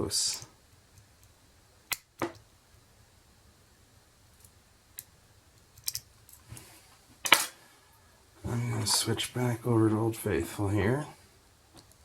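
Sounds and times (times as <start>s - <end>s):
lock pick clicks: 5.8s - 6.1s.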